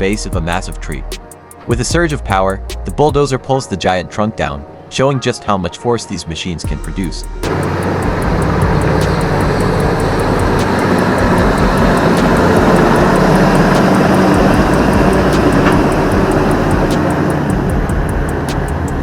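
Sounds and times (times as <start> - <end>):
bulldozer engine under load: 7.5 - 19.0.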